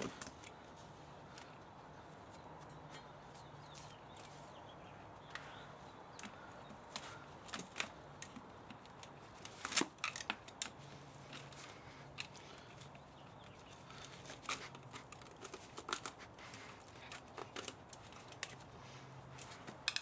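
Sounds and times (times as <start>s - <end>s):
hand tools snipping and scraping metal: 6.2s - 20.0s.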